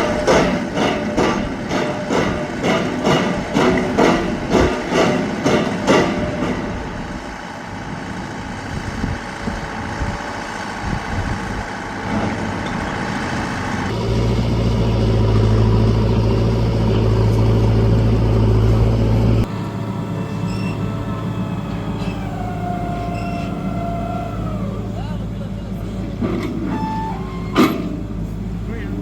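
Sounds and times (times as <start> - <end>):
vehicle noise: 0.0 - 29.0
low engine hum: 6.7 - 29.0.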